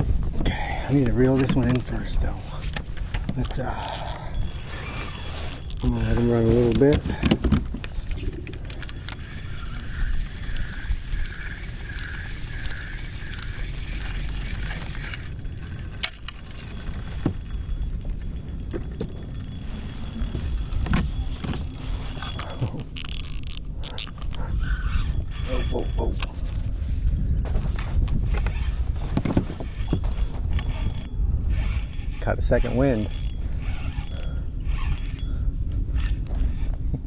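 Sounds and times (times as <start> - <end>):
wind rumble on microphone: 0.0 - 37.0
fishing reel whirring: 0.7 - 26.3, 28.3 - 36.8
fishing reel clicks: 3.4 - 7.2, 8.1 - 26.3, 29.6 - 36.7.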